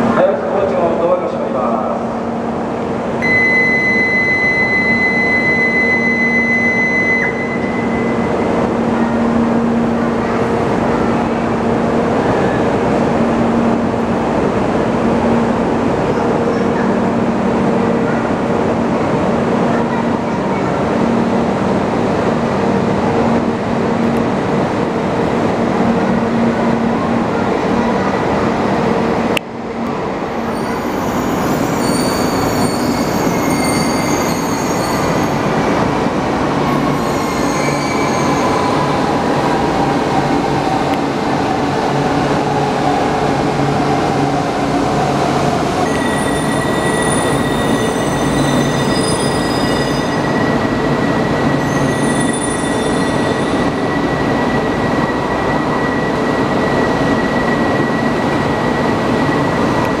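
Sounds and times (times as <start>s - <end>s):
train rumbling into station: 0.0s - 60.0s
steady high tone: 3.2s - 11.4s
high wheel squeals: 30.4s - 35.5s, 36.7s - 38.8s, 45.8s - 59.6s.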